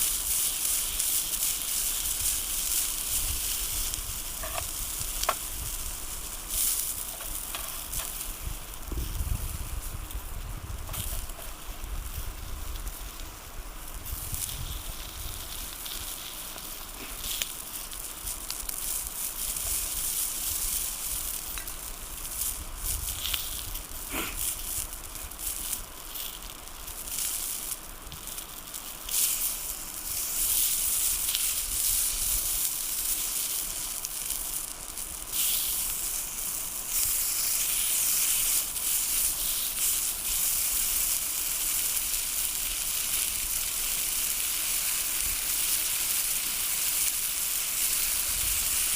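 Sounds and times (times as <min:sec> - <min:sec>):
campfire crackles: 0:00.0 - 0:48.9
food sizzling in a pan: 0:00.0 - 0:48.9.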